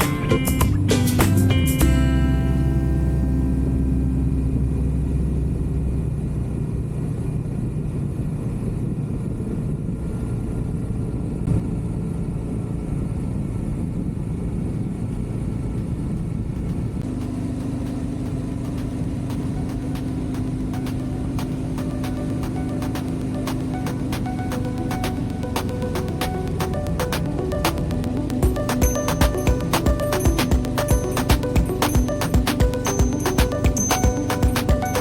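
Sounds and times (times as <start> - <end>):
motorcycle engine and road noise: 0.0 - 35.0.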